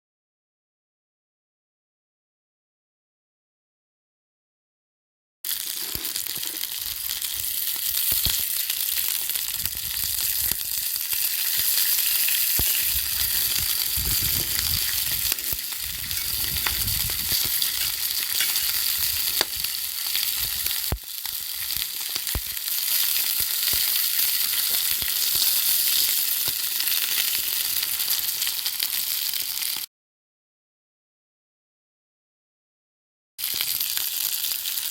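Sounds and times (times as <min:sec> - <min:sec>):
food sizzling in oil: 0:05.5 - 0:29.9, 0:33.4 - 0:34.9
oil popping: 0:09.8 - 0:21.0.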